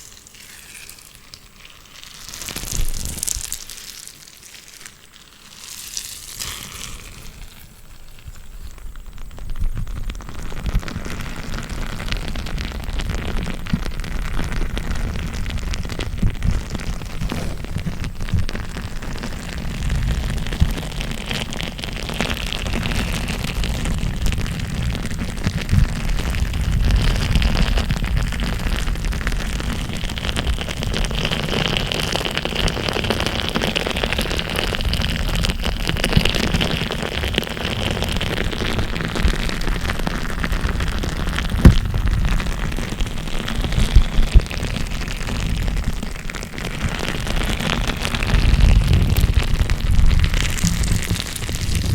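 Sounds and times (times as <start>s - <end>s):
crackling and rustling handling noise: 13.6s - 21.0s
low rumble: 48.2s - 51.9s
sharp pops: 48.8s - 51.9s.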